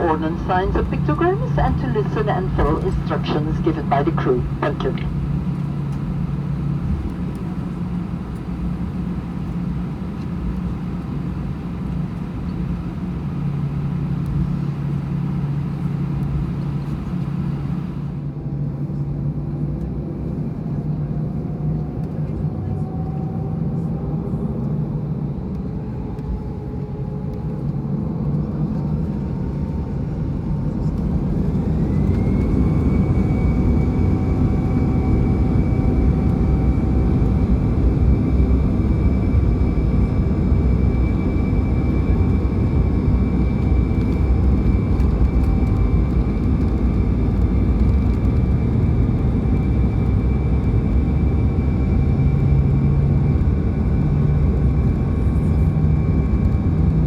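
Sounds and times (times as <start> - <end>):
deep engine rumble: 0.0 - 18.3
jet engine whine: 0.0 - 18.8, 21.3 - 57.0.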